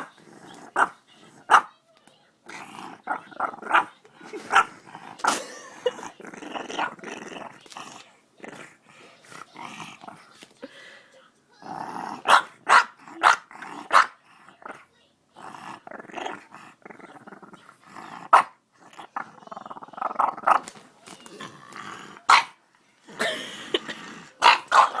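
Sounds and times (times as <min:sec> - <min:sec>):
dog grumbling: 0:00.0 - 0:01.7, 0:02.4 - 0:10.4, 0:11.6 - 0:14.8, 0:15.4 - 0:22.3, 0:23.1 - 0:25.0
dog barking sharply: 0:24.4 - 0:25.0.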